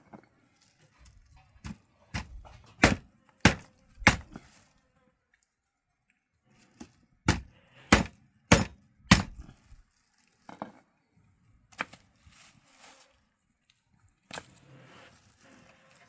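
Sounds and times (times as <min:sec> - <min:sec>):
blade chopping on hard surface: 0:02.2 - 0:04.4, 0:07.3 - 0:09.5.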